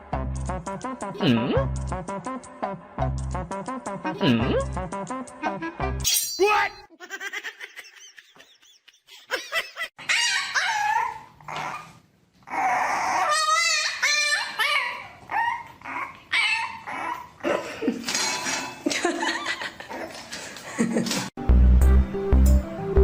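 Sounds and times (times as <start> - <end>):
dog whining and yipping: 10.0 - 17.4.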